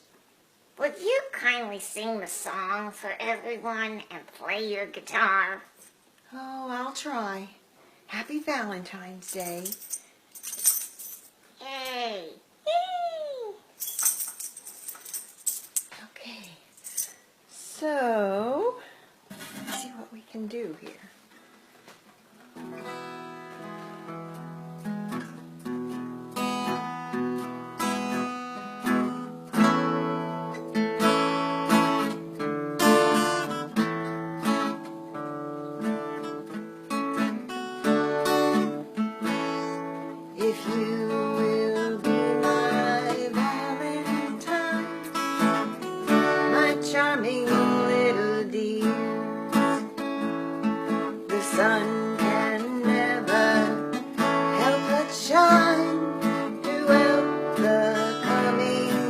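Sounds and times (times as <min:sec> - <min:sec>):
acoustic guitar strumming: 0:19.3 - 0:20.2, 0:22.4 - 0:59.0
person singing: 0:39.5 - 0:49.9, 0:51.2 - 0:59.0.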